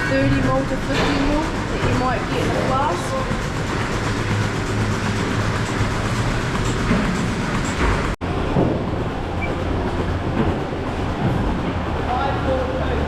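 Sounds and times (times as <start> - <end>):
milking machinery running: 0.0 - 13.0
rotary milking platform turning: 0.0 - 13.0.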